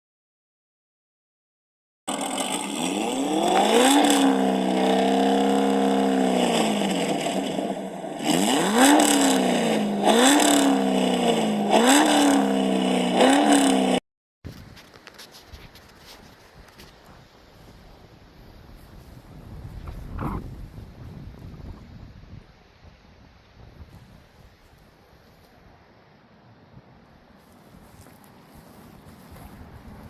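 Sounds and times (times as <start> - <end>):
engine revving: 2.1 - 14.0.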